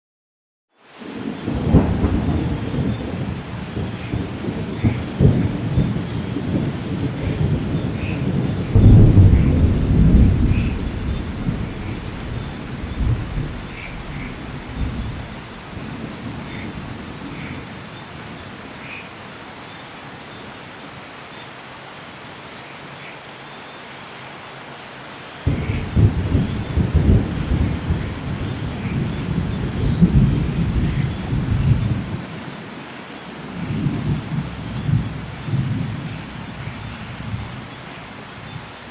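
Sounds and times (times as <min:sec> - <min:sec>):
steady rain: 0:00.8 - 0:38.9
rolling thunder: 0:01.4 - 0:17.8, 0:25.5 - 0:32.3.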